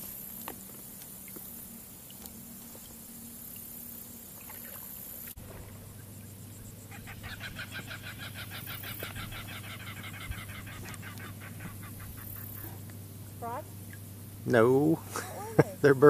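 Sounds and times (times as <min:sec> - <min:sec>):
birds chattering: 0:05.8 - 0:16.0.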